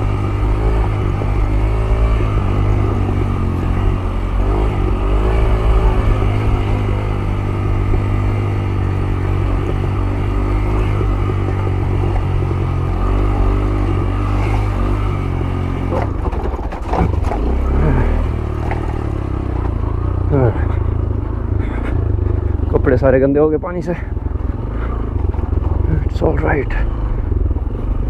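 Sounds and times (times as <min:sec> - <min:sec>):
motorcycle engine at low revs: 0:00.0 - 0:28.0
clattering knocks over rough ground: 0:15.8 - 0:19.8.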